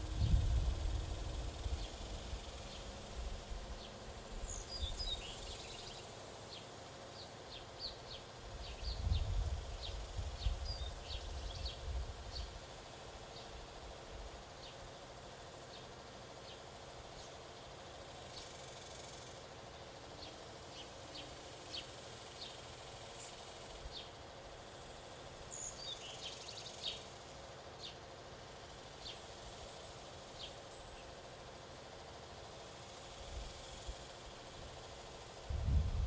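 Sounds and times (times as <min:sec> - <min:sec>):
small birds chirping: 0:01.0 - 0:35.4.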